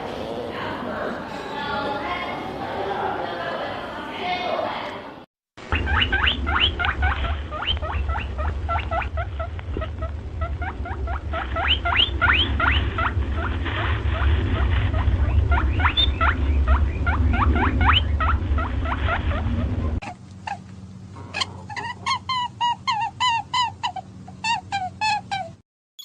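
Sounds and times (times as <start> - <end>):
low rumble: 5.6 - 20.0
squirrel chirping: 5.6 - 20.6, 21.2 - 25.6.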